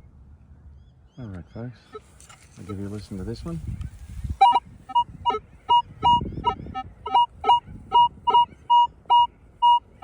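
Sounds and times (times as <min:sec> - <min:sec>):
metal detector short beeps: 0:04.4 - 0:06.3, 0:07.1 - 0:09.9.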